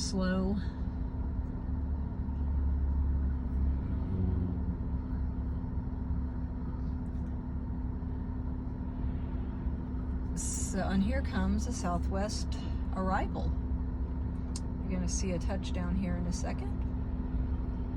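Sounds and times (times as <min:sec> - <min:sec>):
faint constant hum: 0:00.0 - 0:17.9
low engine rumble: 0:00.0 - 0:17.9.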